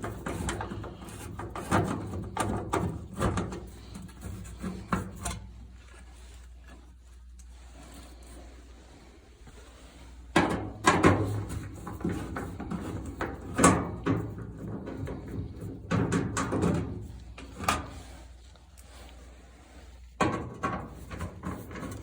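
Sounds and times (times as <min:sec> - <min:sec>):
knocks and clatter on sheet metal: 0:10.4 - 0:17.8, 0:20.2 - 0:22.0.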